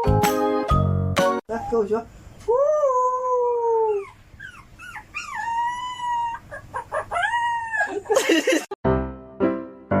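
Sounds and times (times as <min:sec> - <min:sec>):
dog whining yips: 0:03.9 - 0:08.0.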